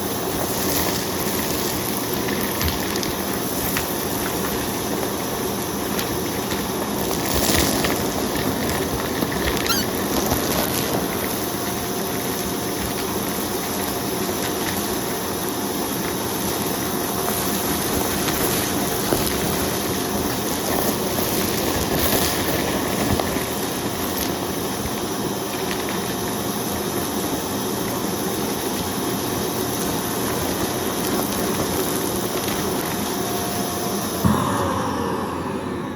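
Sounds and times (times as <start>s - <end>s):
debris crackling in vacuum: 0.2s - 24.8s.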